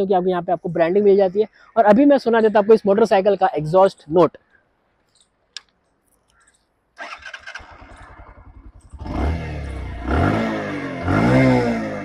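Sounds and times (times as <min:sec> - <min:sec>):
motorcycle engine cranking: 0:07.0 - 0:10.5
motorcycle exhaust revving: 0:07.0 - 0:12.0.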